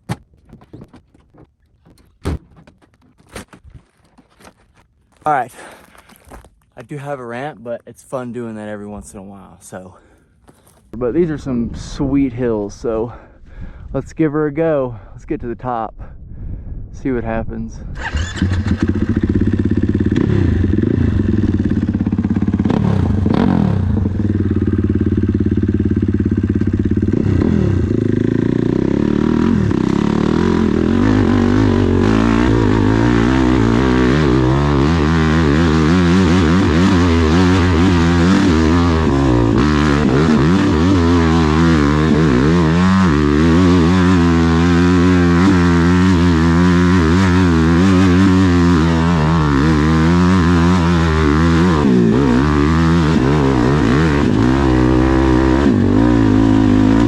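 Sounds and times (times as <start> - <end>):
dirt bike engine revving: 18.0 - 57.0.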